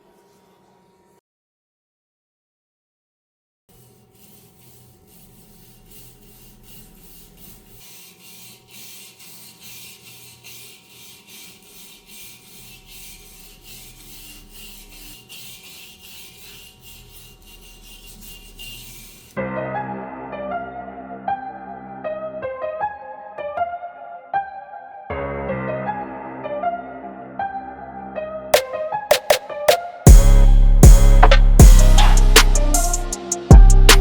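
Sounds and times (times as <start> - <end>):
abrasive rubbing strokes: 3.7 - 19.4, 28.6 - 34.0
piano-like music: 19.4 - 34.0.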